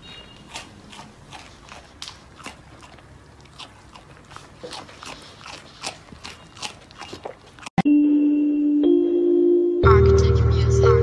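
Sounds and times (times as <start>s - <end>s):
alpaca chewing crunches: 0.0s - 7.8s.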